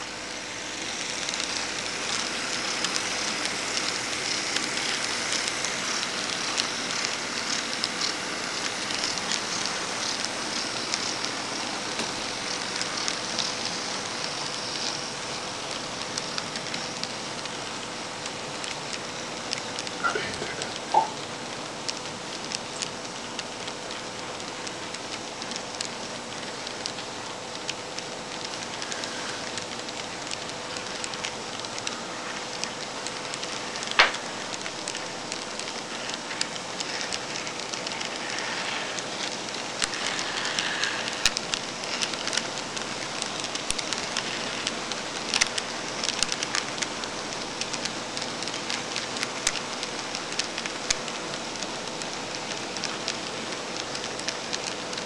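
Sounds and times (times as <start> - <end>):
model train wheels hissing: 0.0 - 17.8, 28.4 - 31.2, 33.2 - 48.8
faint steady hum: 0.0 - 55.0.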